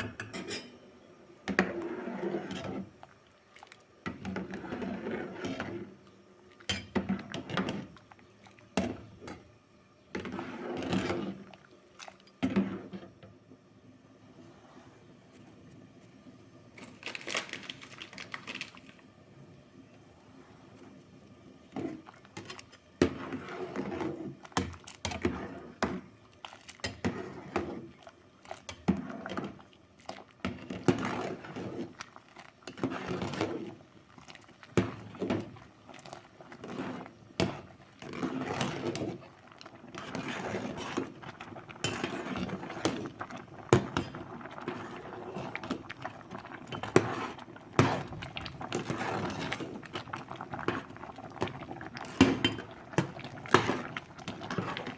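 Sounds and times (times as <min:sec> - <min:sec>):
dishes and utensils clinking: 0:00.0 - 0:00.9.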